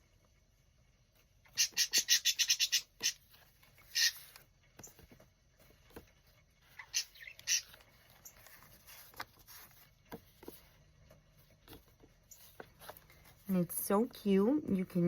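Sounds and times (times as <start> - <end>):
bird chirps: 1.5 - 3.2, 6.8 - 8.4
paper rustling: 3.2 - 13.5.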